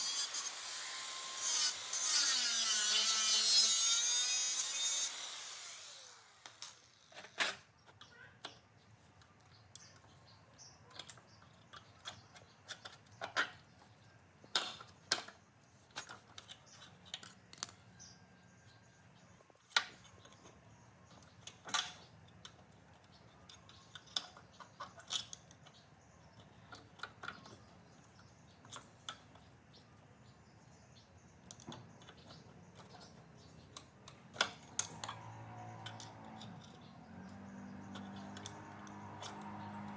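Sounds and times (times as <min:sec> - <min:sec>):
loud tool noise: 0:00.0 - 0:07.6.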